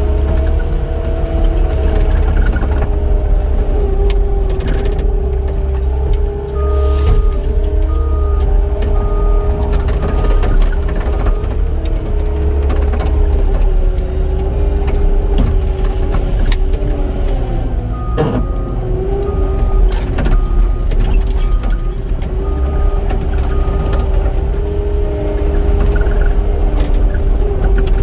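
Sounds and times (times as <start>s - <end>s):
diesel engine rumbling: 0.0s - 28.0s
backup alarm beeping: 6.1s - 11.8s, 17.8s - 24.1s.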